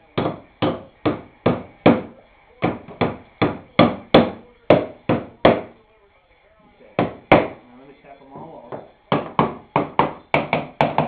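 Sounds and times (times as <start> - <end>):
hammer driving nails into wood: 9.1 - 11.0.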